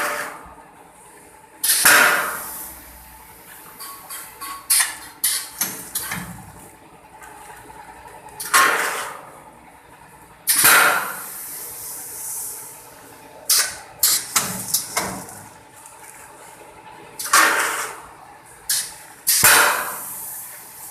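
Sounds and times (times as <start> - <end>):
rice dropping with rushing hiss: 19.4 - 20.9.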